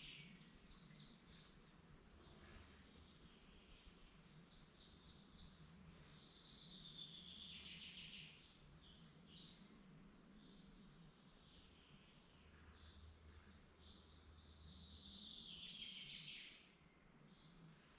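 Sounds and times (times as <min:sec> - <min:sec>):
faint birdsong: 0:00.0 - 0:17.9
low steady background hum: 0:00.0 - 0:17.9.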